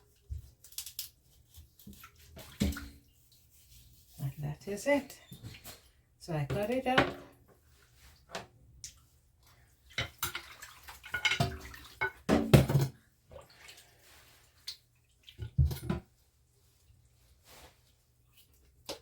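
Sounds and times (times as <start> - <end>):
water splashes: 8.8 - 12.1.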